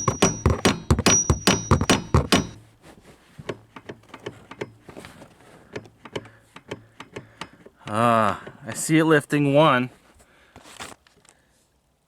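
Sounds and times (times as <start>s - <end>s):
sharp taps on metal part: 0.0s - 2.6s.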